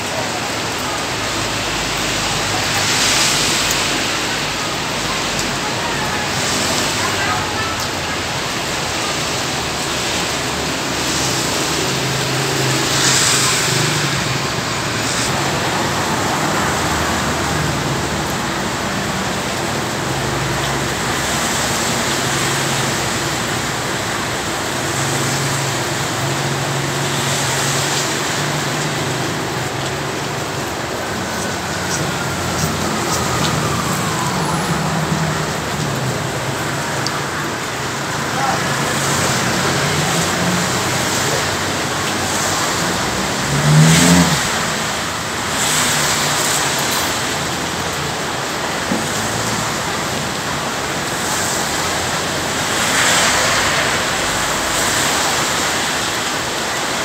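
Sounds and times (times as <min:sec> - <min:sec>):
heavy rain falling: 0:00.0 - 0:57.0
vehicles passing: 0:00.0 - 0:57.0.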